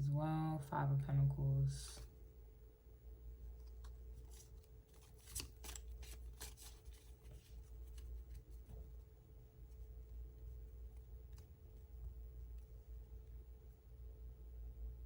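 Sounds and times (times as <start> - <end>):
faint hum: 0.0 - 15.0
cards flicking and snapping: 3.7 - 8.7.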